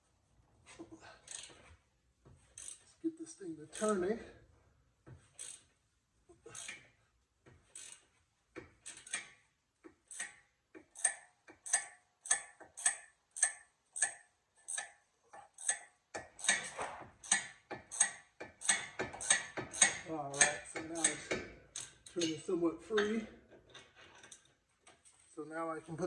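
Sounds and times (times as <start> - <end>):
socket ratchet clicking: 15.6 - 22.3.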